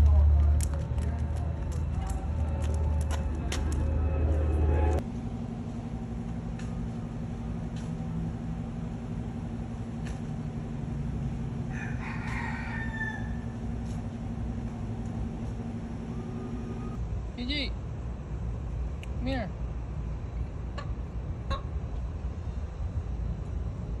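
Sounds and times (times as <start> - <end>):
steady low hum: 0.0 - 24.0
rooster crowing: 11.6 - 13.6.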